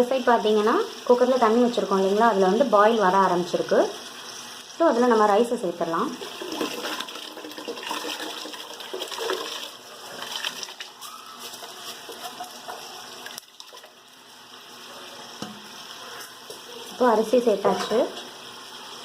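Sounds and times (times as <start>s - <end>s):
rice pouring into water: 6.2s - 14.0s.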